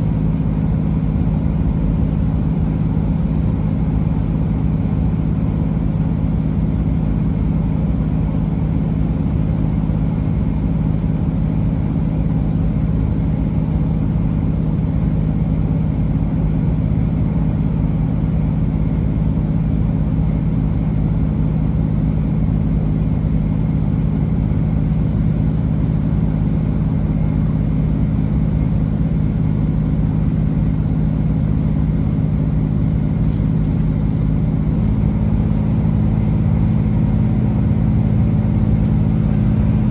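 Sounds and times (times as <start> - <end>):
train diesel engine drone: 0.0 - 39.9.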